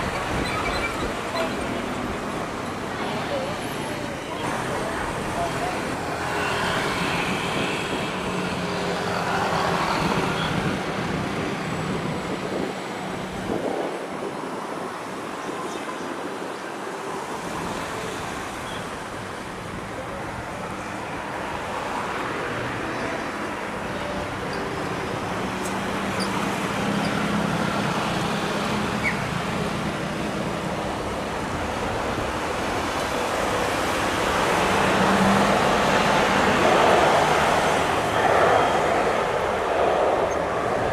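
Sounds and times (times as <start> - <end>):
jet engines rushing: 25.4 - 40.9.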